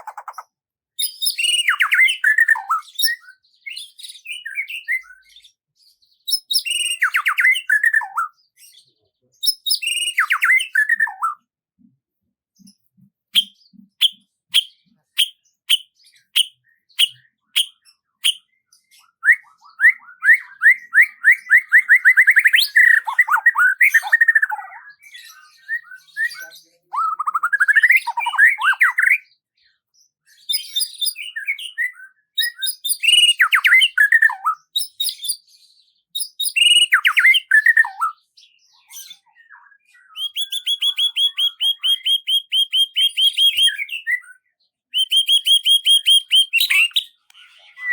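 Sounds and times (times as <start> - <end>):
songbirds singing: 0.0 - 47.9.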